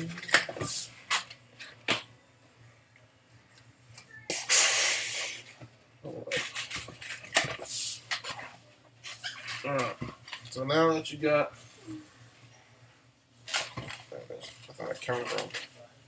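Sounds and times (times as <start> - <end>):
air hissing into balloon: 4.3 - 5.6.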